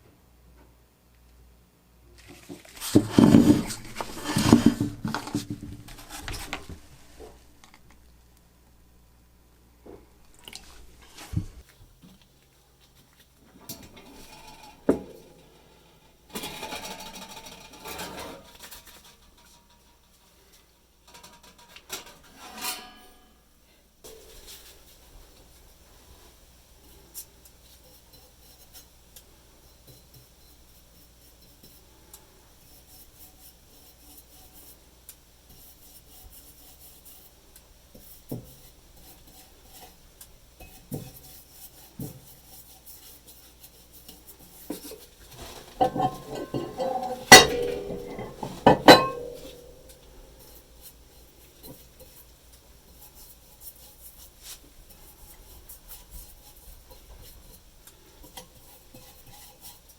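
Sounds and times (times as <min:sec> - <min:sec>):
rubbing and soft knocks: 0:02.2 - 0:07.9, 0:29.8 - 0:59.9
metal clattering: 0:45.4 - 0:50.5.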